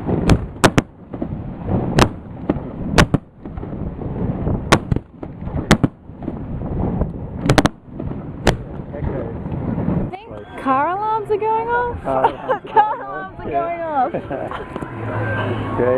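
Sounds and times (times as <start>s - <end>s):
fireworks bangs: 0.0s - 10.8s.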